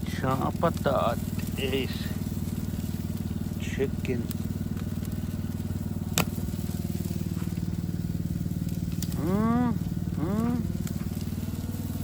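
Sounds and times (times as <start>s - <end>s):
chicken sizzling as it fries: 0.0s - 9.3s
low pulsing motor hum: 0.0s - 12.0s
short voiced sounds: 9.1s - 10.8s.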